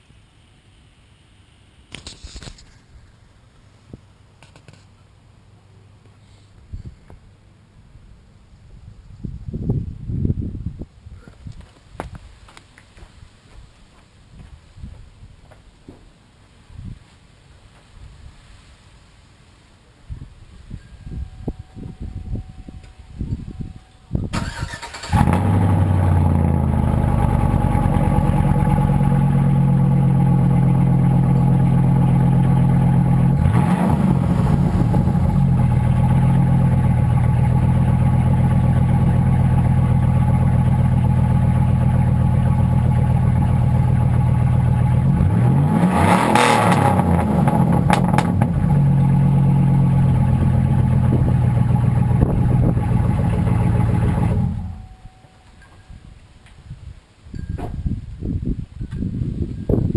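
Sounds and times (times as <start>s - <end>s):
truck engine idling and revving: 24.4s - 55.0s.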